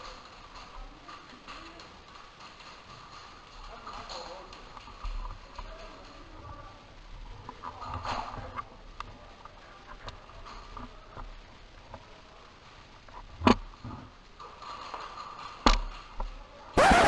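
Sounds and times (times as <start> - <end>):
sharp cracks: 16.8 - 17.0.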